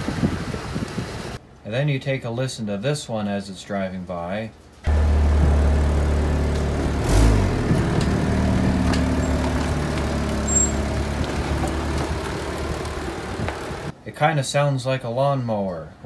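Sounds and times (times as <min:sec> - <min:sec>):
car engine running rough: 0:04.9 - 0:13.9.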